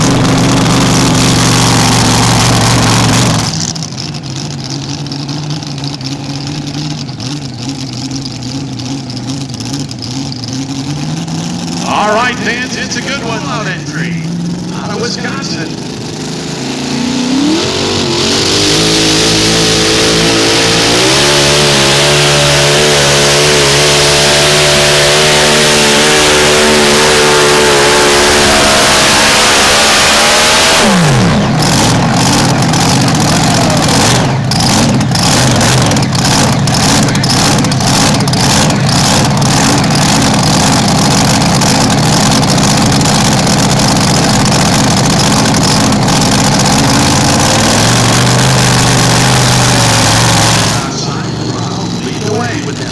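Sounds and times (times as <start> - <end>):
rough crackling engine: 0.0 - 52.9
tractor engine at full throttle: 0.0 - 52.9.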